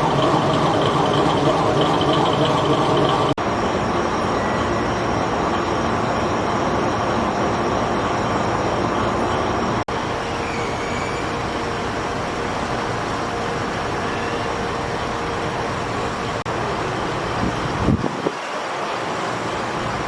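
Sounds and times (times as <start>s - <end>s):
vehicle running rumble: 0.0s - 3.4s.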